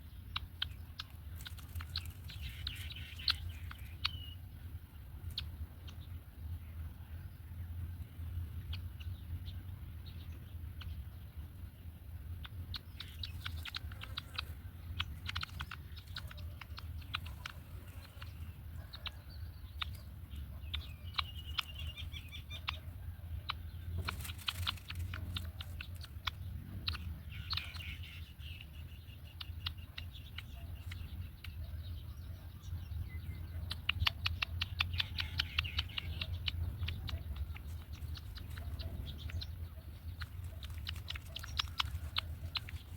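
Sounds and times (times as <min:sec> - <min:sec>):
high bird calls: 0:00.0 - 0:42.9
steady low hum: 0:00.0 - 0:42.9
clicks and rustles: 0:40.0 - 0:42.9.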